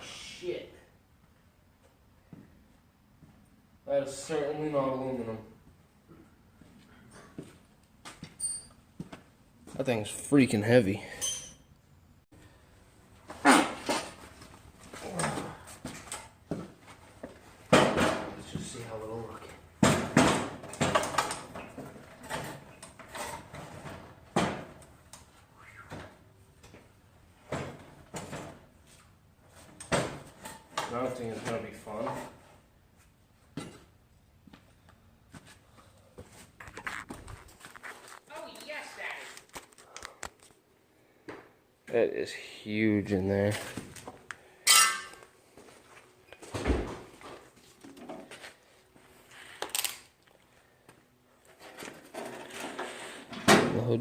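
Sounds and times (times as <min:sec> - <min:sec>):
metal clunks and scrapes: 0:51.5 - 0:53.5.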